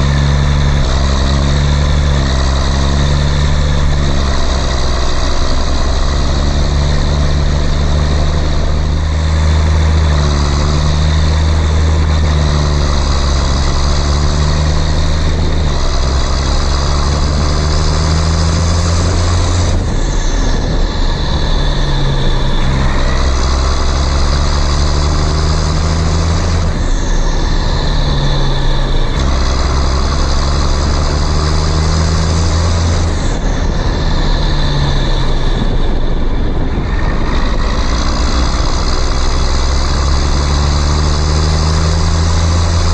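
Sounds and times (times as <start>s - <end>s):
cartoon tractor engine humming: 0.0s - 42.9s.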